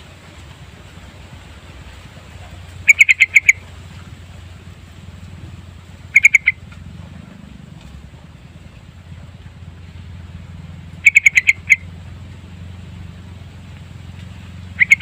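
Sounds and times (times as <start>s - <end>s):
bulbul calling: 2.1s - 7.4s, 10.2s - 15.0s.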